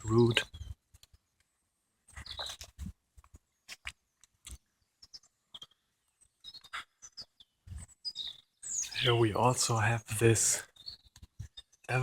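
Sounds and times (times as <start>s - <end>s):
faint bird chirps: 0.0s - 1.4s, 2.1s - 2.9s, 4.0s - 12.0s
footsteps on outdoor path: 2.1s - 5.7s.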